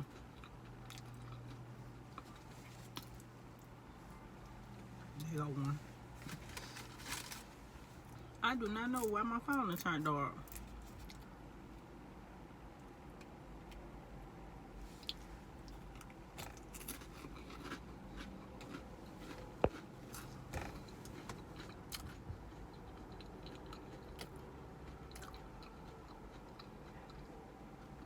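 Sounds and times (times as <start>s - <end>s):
person chewing food: 0.0s - 3.8s, 14.8s - 28.0s
faint traffic rumble: 0.0s - 28.0s.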